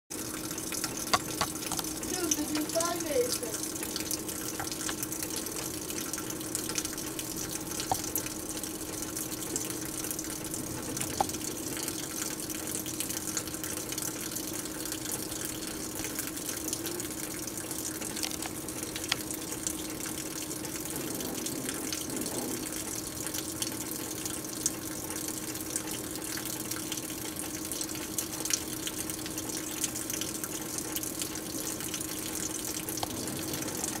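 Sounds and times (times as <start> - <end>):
louder drips: 0.2 - 21.0
heavy rain falling: 0.7 - 14.4, 32.9 - 34.0.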